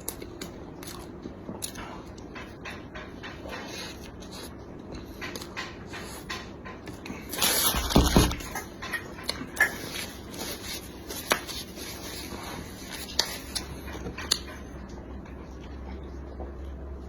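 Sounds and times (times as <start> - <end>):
eating clicks and smacks: 0.0 - 7.7, 12.9 - 16.8.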